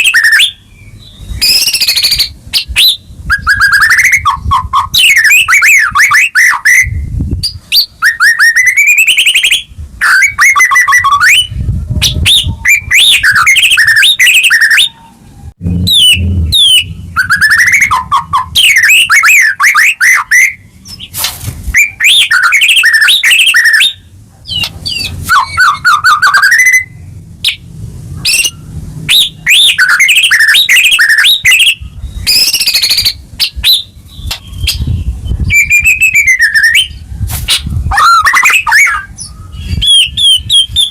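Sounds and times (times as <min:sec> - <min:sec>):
bird singing whistles and trills: 0:00.0 - 0:27.6, 0:28.2 - 0:40.9.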